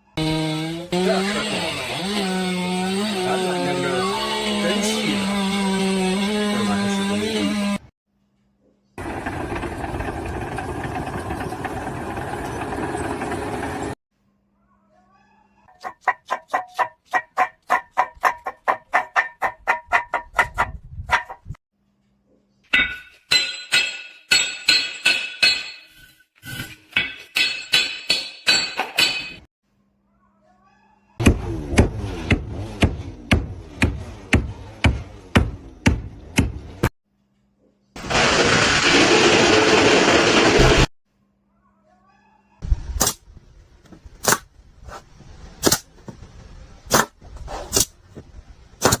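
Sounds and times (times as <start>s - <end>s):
hammer striking metal: 22.7s - 26.0s, 26.6s - 29.5s.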